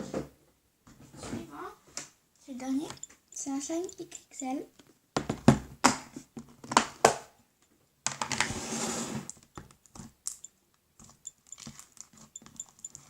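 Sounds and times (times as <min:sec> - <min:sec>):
sharp clicks: 0:02.8 - 0:04.2, 0:09.3 - 0:13.0
rustling: 0:08.4 - 0:13.0
small taps: 0:09.3 - 0:13.0.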